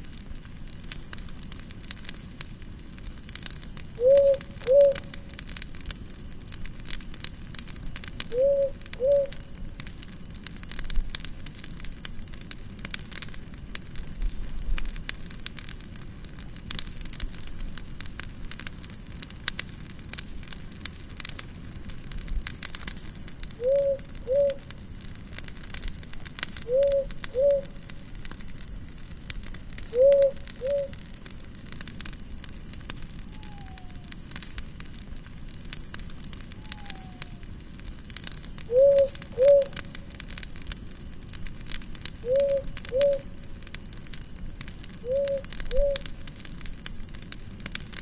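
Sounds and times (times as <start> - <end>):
fire crackling and popping: 0.0 - 48.0
high chirps: 0.9 - 2.3, 14.3 - 14.5, 17.2 - 19.6.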